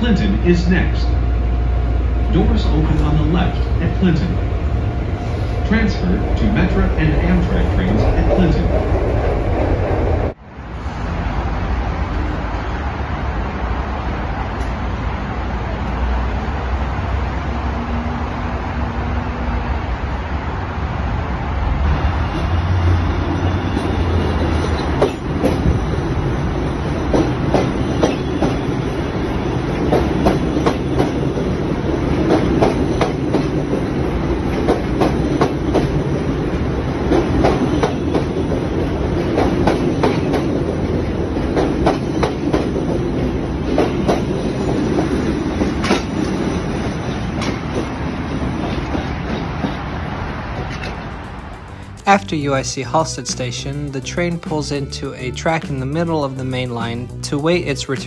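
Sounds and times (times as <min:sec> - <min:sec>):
train low hum: 0:00.0 - 0:58.0
train wheels clicking over track: 0:22.4 - 0:52.2.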